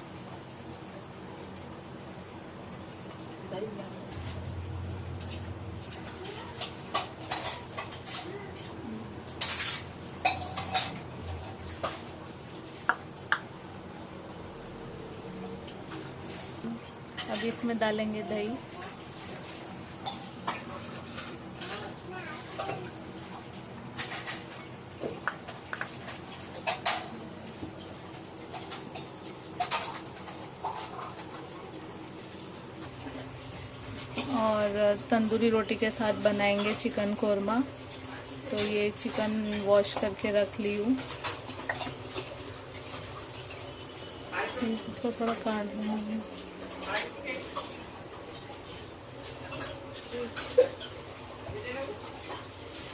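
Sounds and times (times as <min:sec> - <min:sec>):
utensils clinking against dishes: 0:03.8 - 0:12.2, 0:15.7 - 0:18.6, 0:19.2 - 0:52.9
utensil clinking against bowl: 0:09.3 - 0:12.0.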